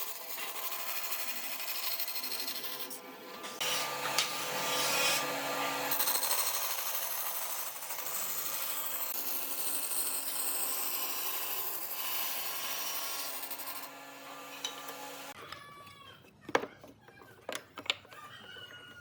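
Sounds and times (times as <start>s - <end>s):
power sander rasping wood: 3.6s - 6.0s.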